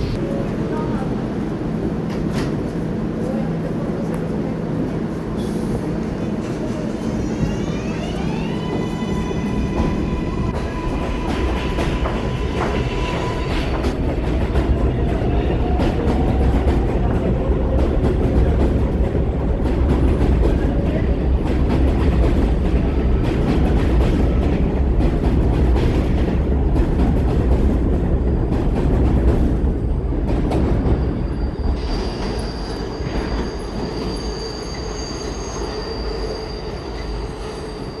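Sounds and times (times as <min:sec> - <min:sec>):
subway train traction motors whining: 0:00.0 - 0:38.0
wheels rumbling on rails: 0:09.2 - 0:35.2
high-pitched wheel squeal: 0:31.2 - 0:38.0.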